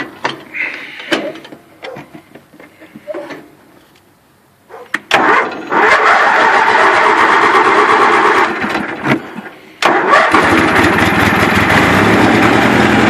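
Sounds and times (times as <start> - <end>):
lawn tractor engine running: 5.0 - 13.0
lawn tractor engine starting: 5.1 - 13.0.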